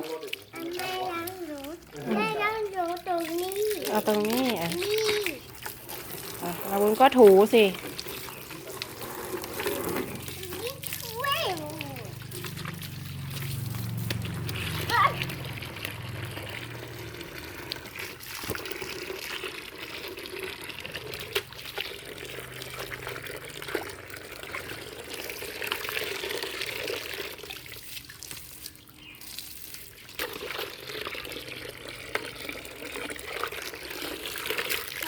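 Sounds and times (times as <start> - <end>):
water running and splashing: 0.0 - 35.0.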